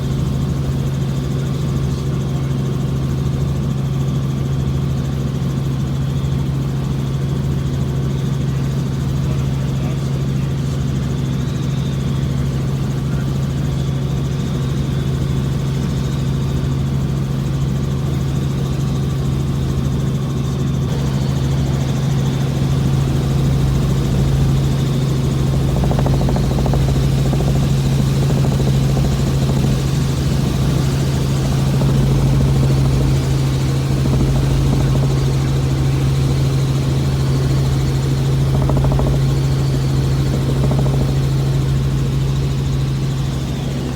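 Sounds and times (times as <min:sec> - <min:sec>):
helicopter engine and rotor drone: 0:00.0 - 0:43.9.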